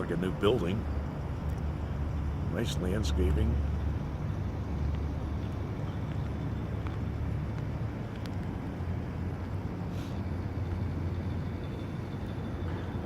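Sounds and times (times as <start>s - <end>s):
traffic engines rumbling: 0.0s - 13.0s
brief hiss: 9.9s - 10.2s.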